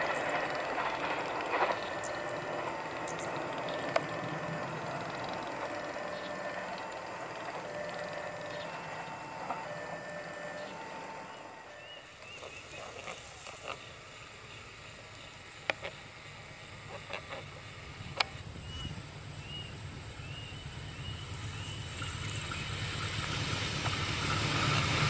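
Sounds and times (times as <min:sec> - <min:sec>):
steady ringing tones: 0:00.0 - 0:17.0
passing train: 0:00.0 - 0:25.0.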